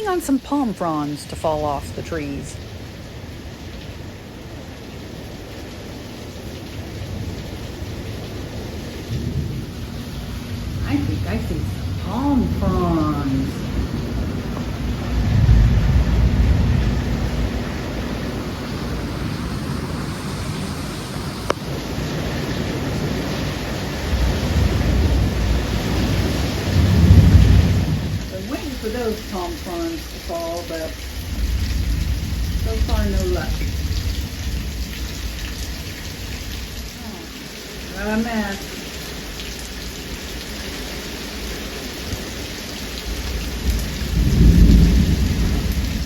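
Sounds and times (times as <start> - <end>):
heavy rain hissing: 0.0 - 46.0
thunder rumbles: 5.3 - 36.9, 42.9 - 46.0.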